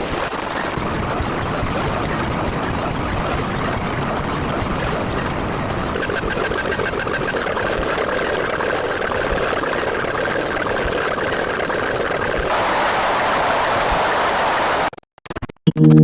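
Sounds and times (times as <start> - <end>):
motor running: 5.9 - 13.1.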